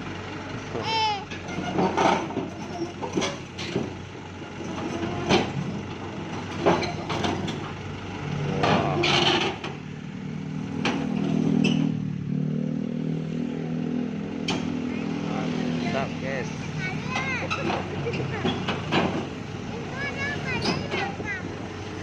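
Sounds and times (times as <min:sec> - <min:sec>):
excavator diesel engine running: 0:00.0 - 0:22.0
metal clanks and knocks: 0:01.4 - 0:04.0, 0:04.7 - 0:07.8, 0:08.6 - 0:09.8, 0:17.0 - 0:19.4.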